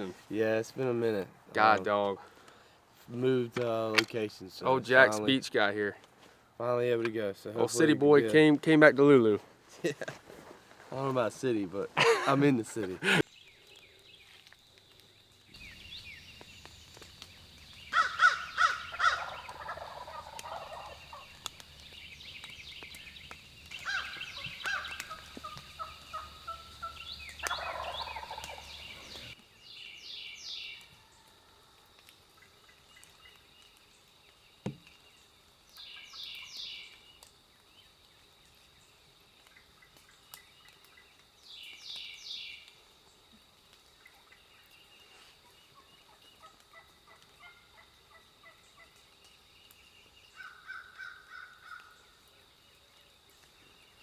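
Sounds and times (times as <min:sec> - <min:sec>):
high-pitched bird calls: 0:15.6 - 0:29.4
turkey gobbling: 0:17.3 - 0:21.8, 0:23.7 - 0:29.4, 0:46.4 - 0:48.6.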